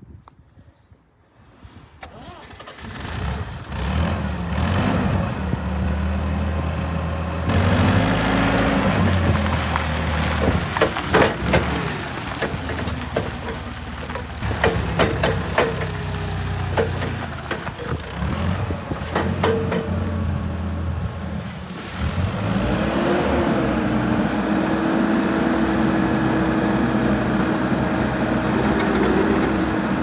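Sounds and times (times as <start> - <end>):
forklift engine revving: 2.4 - 30.0
sharp knocks: 9.3 - 20.2.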